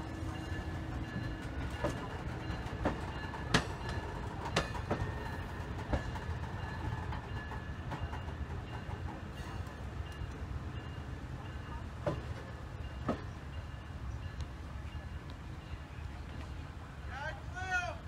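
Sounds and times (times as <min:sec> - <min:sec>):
train wheels rumbling on rails: 0:00.0 - 0:18.0
wheels clacking over rail joints: 0:00.1 - 0:14.4.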